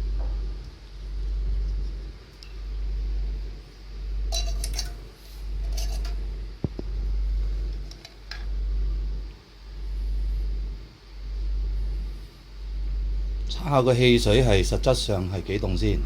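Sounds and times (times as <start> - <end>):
low pulsing rumble: 5.4 - 16.0.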